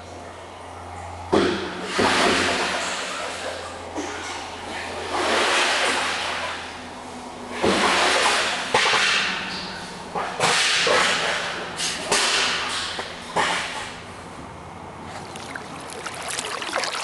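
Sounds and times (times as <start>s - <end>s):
kayak paddle splashing: 15.0s - 17.0s.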